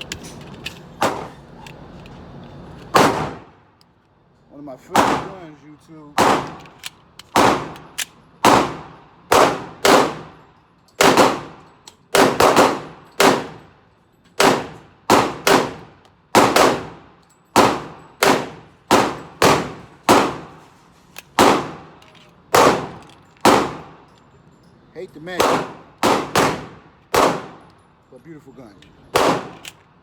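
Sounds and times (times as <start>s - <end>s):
gunshots ringing: 2.9s - 3.5s, 4.9s - 5.6s, 7.4s - 10.4s, 11.0s - 11.6s, 12.2s - 13.6s, 14.4s - 17.0s, 17.6s - 20.6s, 21.4s - 21.9s, 22.5s - 24.0s, 25.3s - 27.6s, 29.1s - 29.8s.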